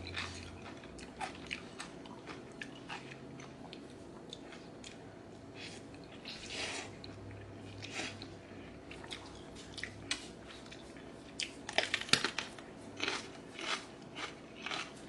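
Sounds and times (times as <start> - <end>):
crisp vegetable crunching: 0.0 - 4.9, 9.0 - 15.0
noodles slurped and chewed: 13.0 - 15.0.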